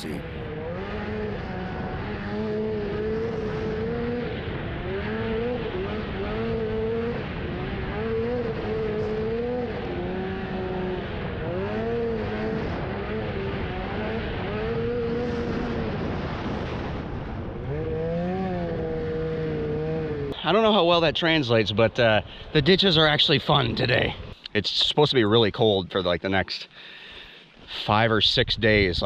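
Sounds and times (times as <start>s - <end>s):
wind noise on microphone: 12.4s - 20.3s, 28.4s - 29.0s.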